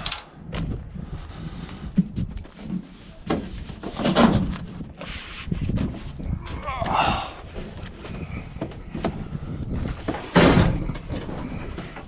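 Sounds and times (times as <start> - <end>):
scrap appliances knocking and clattering: 10.0 - 12.0.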